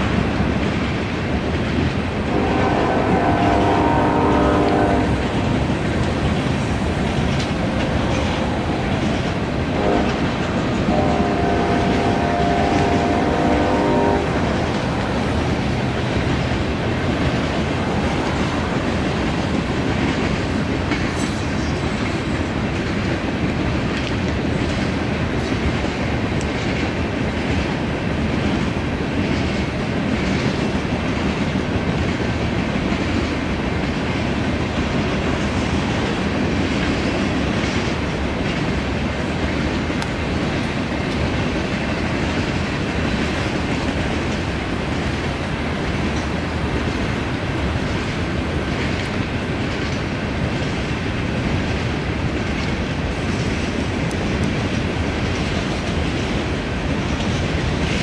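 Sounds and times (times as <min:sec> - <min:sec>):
train wheels rumbling on rails: 0:00.0 - 0:58.0
locomotive horn blasts: 0:02.3 - 0:05.2, 0:09.7 - 0:14.7.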